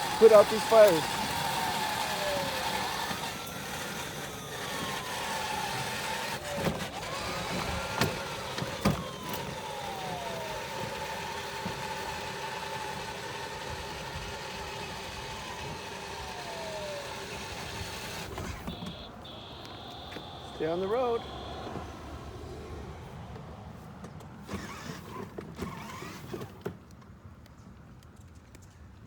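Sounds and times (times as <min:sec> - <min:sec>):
toy siren rising and falling: 0:00.0 - 0:23.2
electric motor whining: 0:00.0 - 0:23.7.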